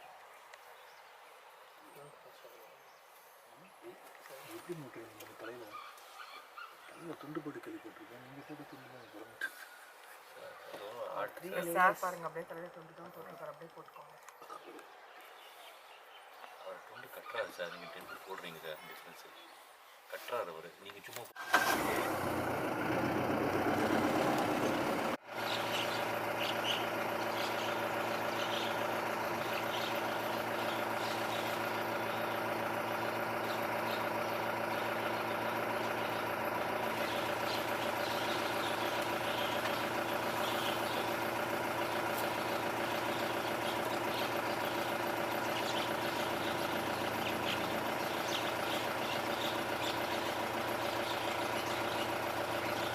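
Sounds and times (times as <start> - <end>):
vehicle engine running steadily: 21.8 - 52.9.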